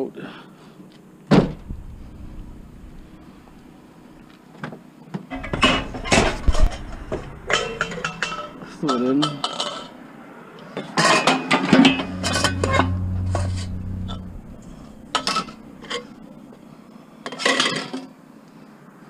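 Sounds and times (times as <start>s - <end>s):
low hum: 1.4s - 4.4s, 5.3s - 10.2s, 11.7s - 16.9s
scrap metal clanking: 5.3s - 10.0s, 11.0s - 16.6s.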